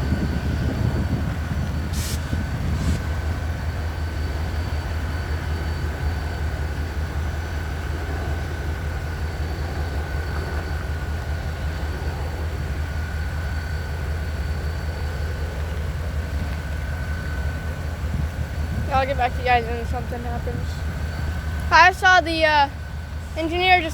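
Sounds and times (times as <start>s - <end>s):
constant whine: 0.0s - 23.9s
locomotive idling rumble: 0.0s - 23.9s
short hisses: 1.8s - 3.6s.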